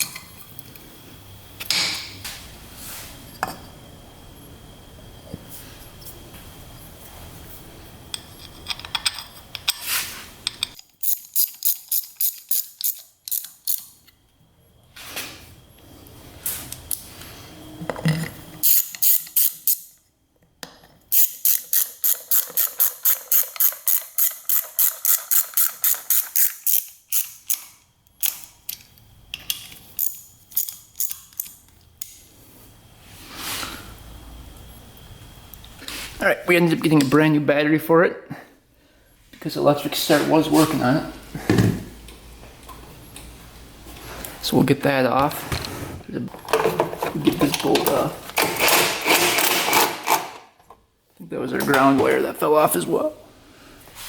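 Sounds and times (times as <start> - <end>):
hand ratchet clicking: 10.4 - 14.0, 18.6 - 20.0, 21.1 - 32.2.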